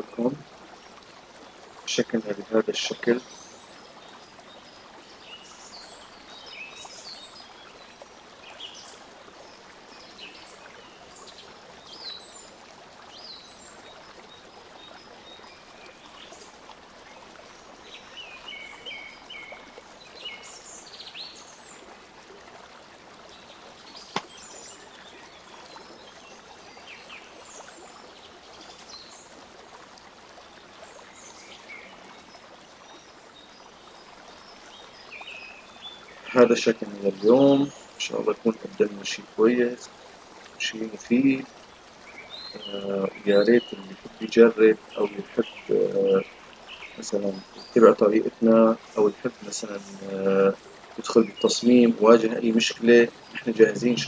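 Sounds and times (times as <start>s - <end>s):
small birds chirping: 0.0s - 54.0s
steady background hiss: 1.8s - 4.1s, 35.0s - 54.0s.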